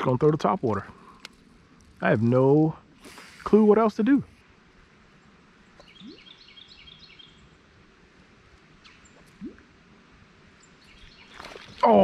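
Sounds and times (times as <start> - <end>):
river ambience: 0.0 - 12.0
small bird chirping: 5.6 - 7.6, 8.8 - 9.6, 10.6 - 11.9.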